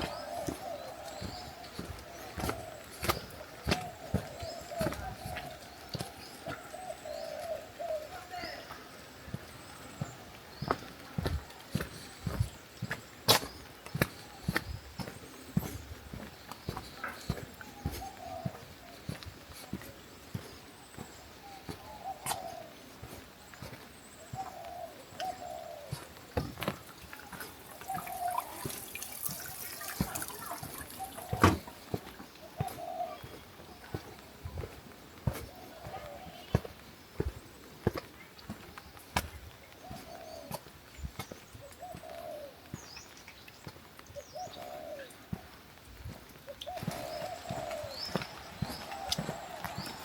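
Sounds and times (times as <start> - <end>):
small birds chirping: 0.0 - 50.0
bird cooing: 24.3 - 31.7, 44.3 - 45.1, 46.6 - 48.2
water dripping and trickling: 26.4 - 32.2.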